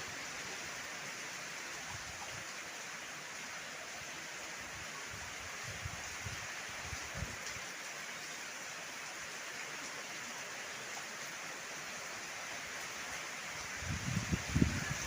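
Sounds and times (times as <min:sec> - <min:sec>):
heavy rain hissing: 0:00.0 - 0:15.0
wind buffeting microphone: 0:13.8 - 0:15.0.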